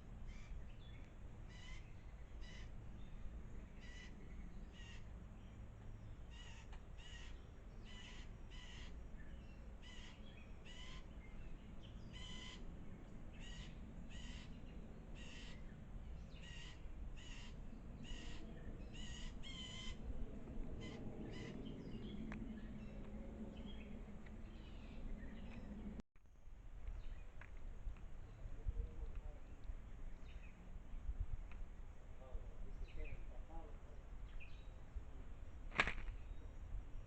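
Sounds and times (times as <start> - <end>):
bird harsh calls: 1.5 - 2.8, 3.7 - 5.1, 6.2 - 12.7, 13.3 - 20.1, 20.8 - 23.0.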